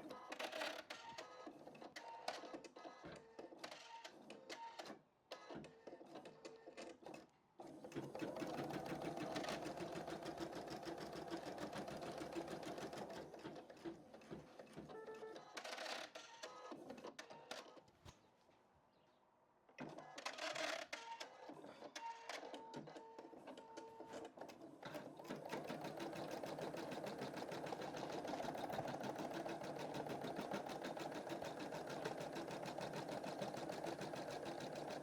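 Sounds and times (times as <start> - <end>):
embroidery machine stitching: 7.9 - 14.9, 24.1 - 35.0.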